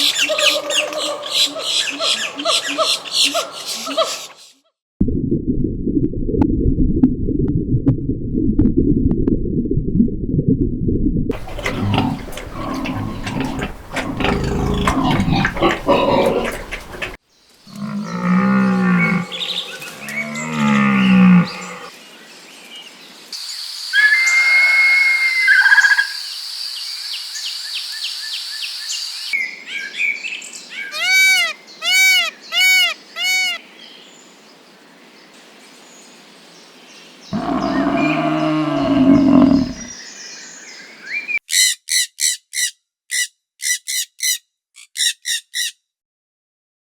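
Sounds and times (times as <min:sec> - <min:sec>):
cattle mooing: 0:11.3 - 0:21.9, 0:37.4 - 0:39.9
high bird-like call: 0:30.8 - 0:33.6.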